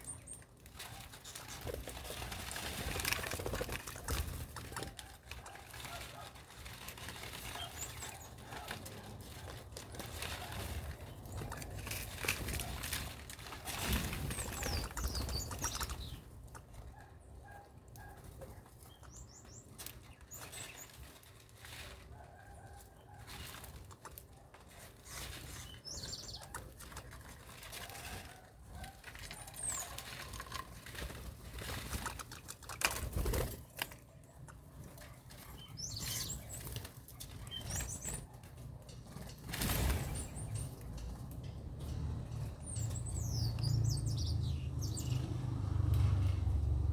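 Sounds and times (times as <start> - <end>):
birds flapping wings: 0.6 - 16.2, 24.8 - 34.1, 35.2 - 41.0.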